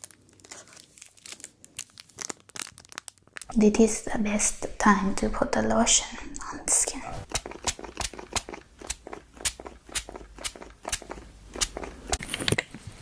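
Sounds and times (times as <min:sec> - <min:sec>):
crunchy crackles: 0:00.0 - 0:03.5.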